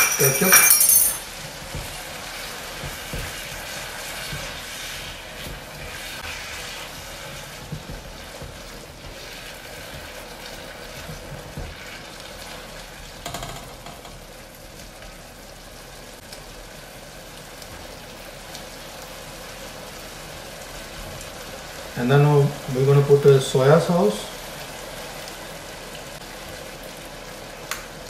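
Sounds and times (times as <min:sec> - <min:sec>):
vegetables sizzling in a wok: 0:01.2 - 0:28.0
spatula tapping a pan: 0:02.8 - 0:03.6, 0:07.6 - 0:10.2, 0:13.2 - 0:14.2.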